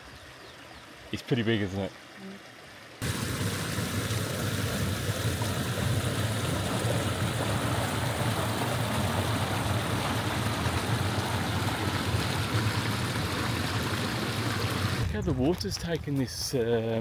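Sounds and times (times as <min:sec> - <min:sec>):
river water rushing: 0:03.0 - 0:15.0.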